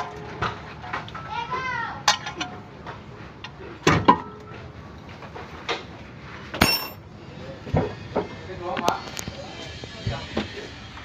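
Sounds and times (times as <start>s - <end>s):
metal tools knocking and clicking: 2.0s - 2.6s, 6.6s - 7.0s.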